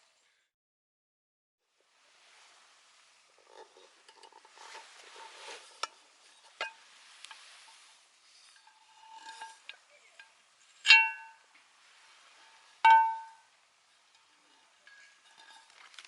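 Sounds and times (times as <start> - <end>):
ringing clinks of tableware: 10.9 - 11.4, 12.9 - 13.5.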